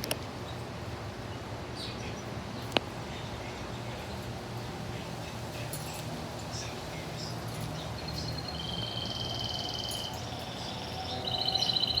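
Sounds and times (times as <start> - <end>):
parrot whistling: 8.4 - 12.0.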